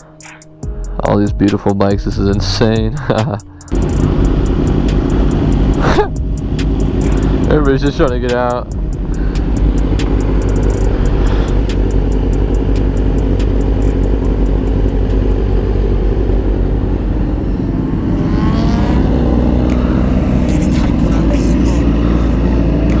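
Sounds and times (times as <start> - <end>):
motorcycle engine revving: 0.0 - 23.0
motorcycle engines running: 0.0 - 23.0.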